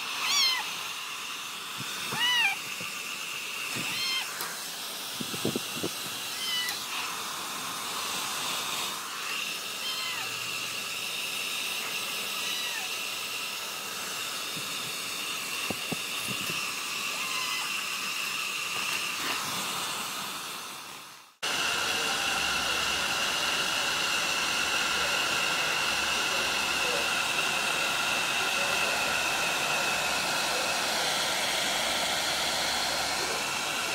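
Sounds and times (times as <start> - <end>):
hair dryer running: 0.0 - 33.9
cat meowing: 0.2 - 0.7, 2.1 - 2.6, 3.7 - 4.4, 6.2 - 7.1, 9.2 - 10.4, 12.3 - 13.0, 17.1 - 17.8.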